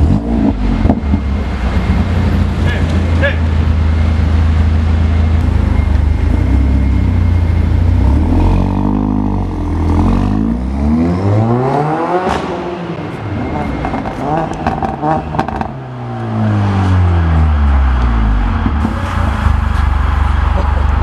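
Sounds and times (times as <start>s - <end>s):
car engine revving: 0.0s - 21.0s
exhaust crack: 16.9s - 21.0s.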